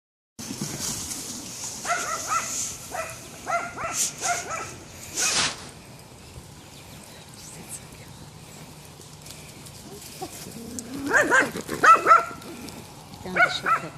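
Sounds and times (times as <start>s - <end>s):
dog barking: 1.8s - 5.4s, 11.1s - 12.4s, 13.3s - 13.9s
brief hissing bursts: 3.9s - 5.8s.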